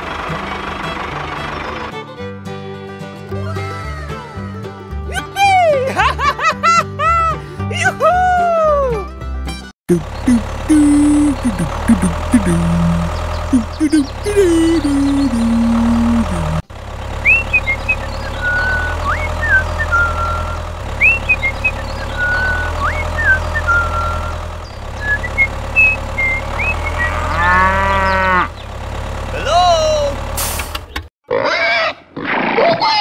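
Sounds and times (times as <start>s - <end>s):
tractor engine hum: 0.0s - 2.3s, 9.9s - 31.1s
bird chirps: 10.0s - 16.6s, 17.2s - 28.7s
cows mooing: 26.2s - 28.6s.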